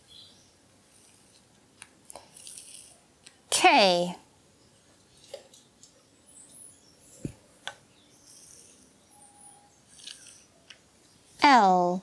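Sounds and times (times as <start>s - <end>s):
faint high chirps: 7.9s - 11.4s.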